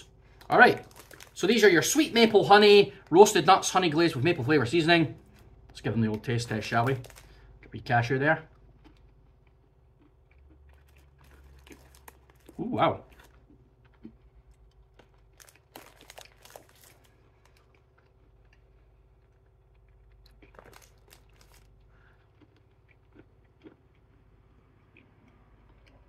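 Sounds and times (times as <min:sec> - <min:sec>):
person chewing crunchy nut: 0:00.1 - 0:01.4, 0:06.7 - 0:26.0.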